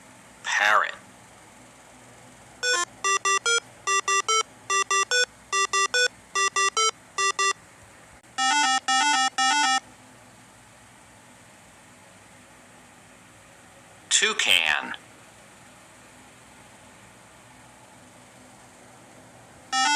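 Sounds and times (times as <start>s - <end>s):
electronic beep melody: 2.6s - 7.6s, 8.4s - 9.8s
longer lower electronic tones: 2.6s - 7.6s, 8.4s - 9.8s.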